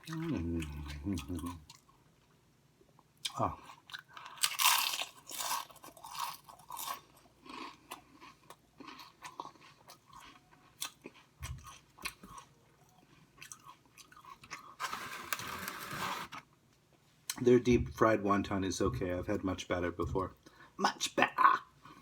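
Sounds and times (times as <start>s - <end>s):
soft chewing: 0.0s - 14.8s
crunching fried food: 3.3s - 16.3s.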